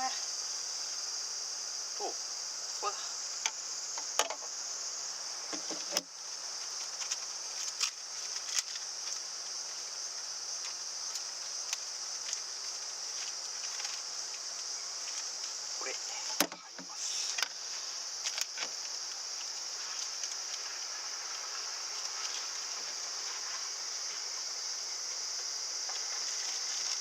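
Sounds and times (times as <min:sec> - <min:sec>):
insects chirring: 0:00.0 - 0:27.0
small clicks and knocks: 0:03.4 - 0:04.5.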